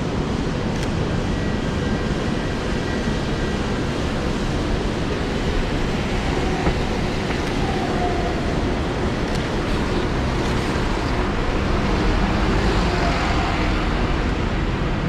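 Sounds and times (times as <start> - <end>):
city street traffic rumble: 0.0 - 15.0
heavy pouring rain: 3.8 - 15.0.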